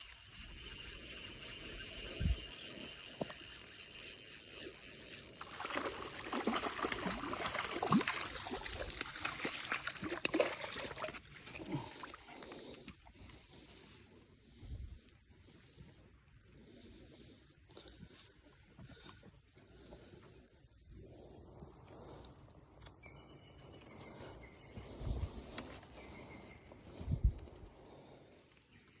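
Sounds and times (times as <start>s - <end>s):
creek water trickling: 0.0s - 12.9s.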